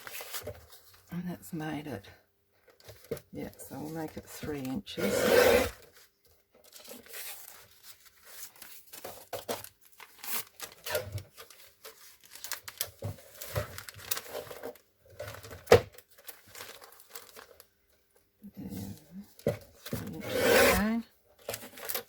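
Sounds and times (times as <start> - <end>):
paper rustling and crinkling: 0.0 - 1.1, 5.7 - 17.8, 18.8 - 22.0.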